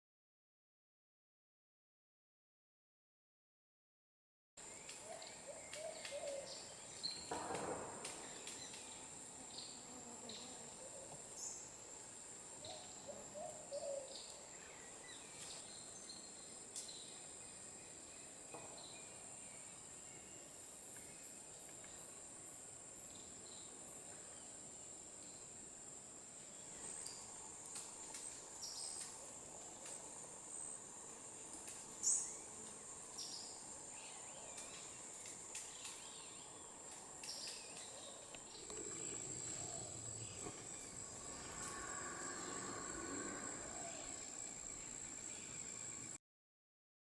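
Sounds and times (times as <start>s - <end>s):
high-pitched insect drone: 26.8s - 46.2s.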